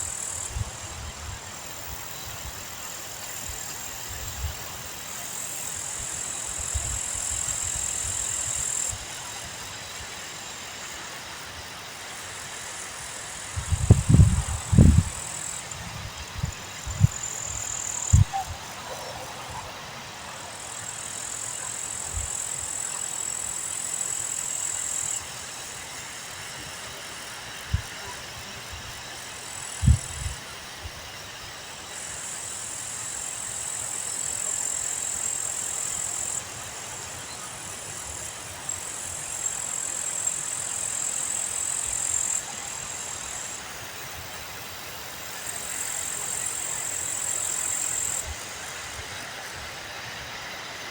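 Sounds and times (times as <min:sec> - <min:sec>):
high steady hiss: 0:00.0 - 0:50.9
wind buffeting microphone: 0:13.5 - 0:17.3, 0:18.1 - 0:18.7, 0:29.8 - 0:30.4
low thumps from gusts: 0:13.6 - 0:15.2.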